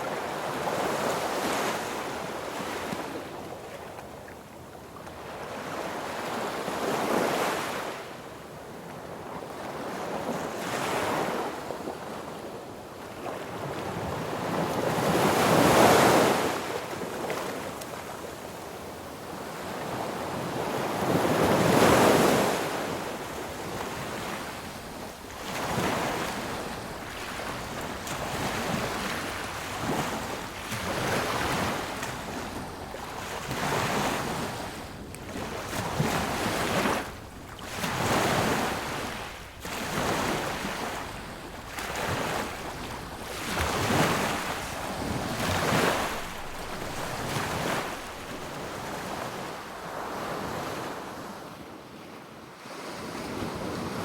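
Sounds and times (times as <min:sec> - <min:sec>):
sea waves breaking on beach: 0:13.3 - 0:51.4.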